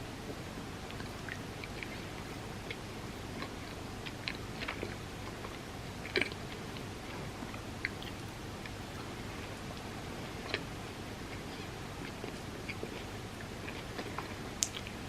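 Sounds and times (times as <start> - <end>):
steady low hum: 0.0 - 15.0
chewing soft food: 0.3 - 15.0
wet mouth clicks: 14.6 - 15.0.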